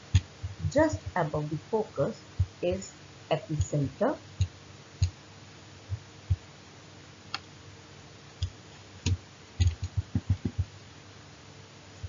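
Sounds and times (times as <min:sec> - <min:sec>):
light clicks and taps with thuds: 0:08.4 - 0:10.7.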